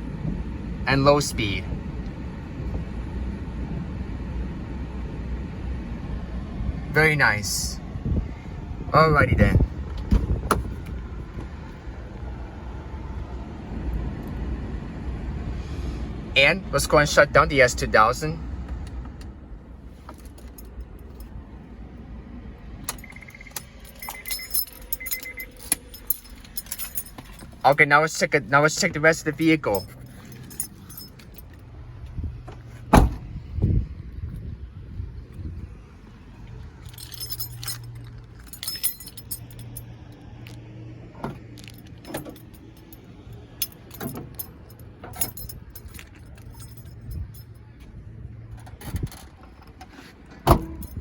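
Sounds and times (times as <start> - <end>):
low engine rumble: 0.0 - 51.0
keys jangling: 20.1 - 21.3, 22.8 - 27.9, 28.6 - 31.7, 36.7 - 40.6, 41.2 - 47.7, 48.5 - 49.4, 50.5 - 51.0
handling clicks and knocks: 22.8 - 27.8, 41.2 - 47.5
warning chime beeping: 23.0 - 26.0.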